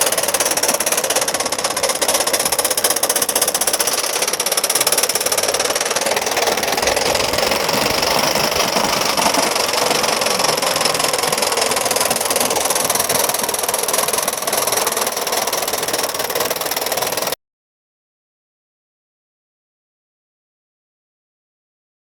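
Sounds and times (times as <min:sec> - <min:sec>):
model steam locomotive beat: 0:00.0 - 0:17.4.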